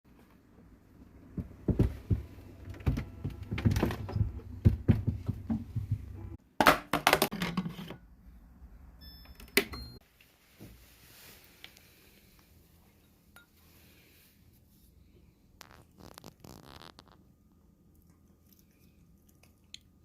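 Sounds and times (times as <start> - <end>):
objects thumping and clicking: 1.4 - 7.7.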